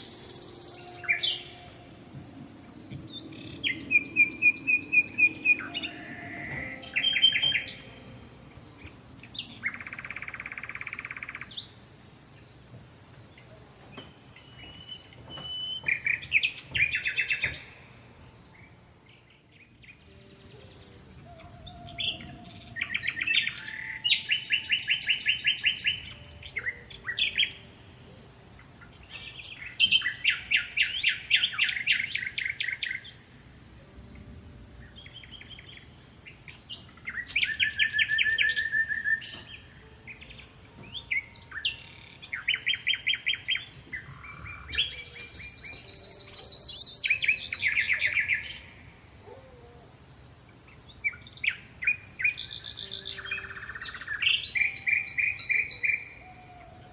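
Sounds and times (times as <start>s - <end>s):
faint high-pitched tone: 0.0s - 11.8s, 17.0s - 30.1s, 33.7s - 36.5s
songbirds trilling: 0.0s - 56.9s.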